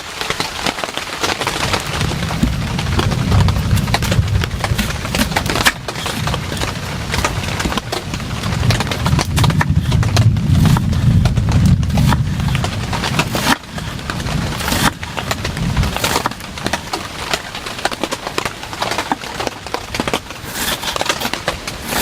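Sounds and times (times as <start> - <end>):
raindrops tapping on a surface: 0.0 - 22.0
steady low rumble: 1.8 - 17.0.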